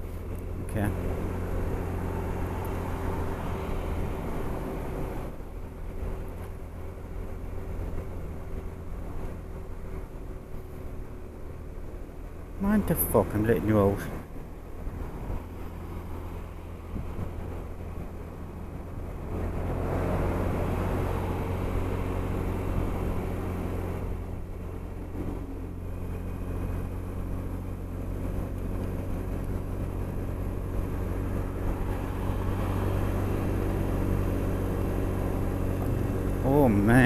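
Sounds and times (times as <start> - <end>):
scooter engine running: 20.4 - 37.0.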